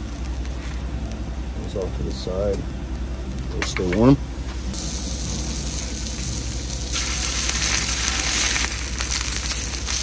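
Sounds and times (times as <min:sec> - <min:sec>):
food sizzling on a griddle: 0:03.3 - 0:10.0.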